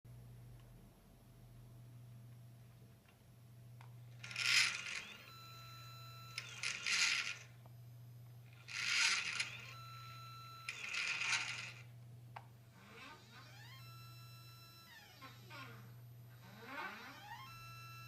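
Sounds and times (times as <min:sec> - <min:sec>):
steady low hum: 0:00.1 - 0:18.0
drive motors slewing: 0:04.2 - 0:07.5, 0:08.6 - 0:11.9.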